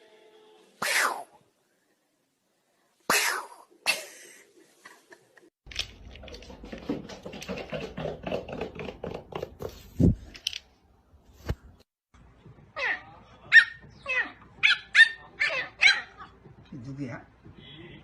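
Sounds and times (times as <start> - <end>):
pet animal high-pitched cries: 12.8 - 16.3.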